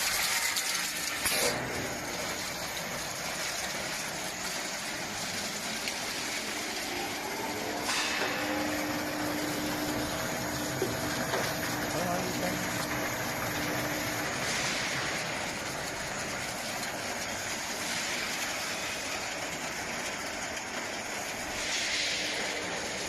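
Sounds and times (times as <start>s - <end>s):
processing machinery running: 0.0s - 23.0s
steady hum: 1.4s - 19.4s.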